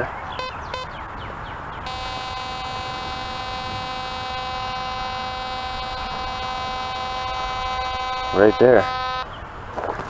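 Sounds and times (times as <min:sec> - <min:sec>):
metal detector buzzy tone: 0:01.8 - 0:09.3.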